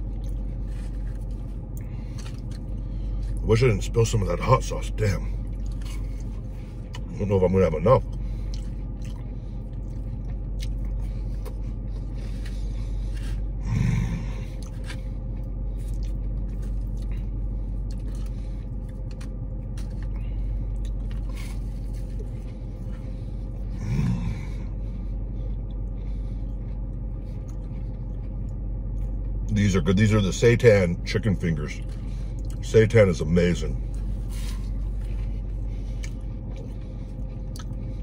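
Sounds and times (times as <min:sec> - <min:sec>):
chewing and crunching food: 0:00.0 - 0:38.0
low car cabin hum: 0:00.0 - 0:38.0.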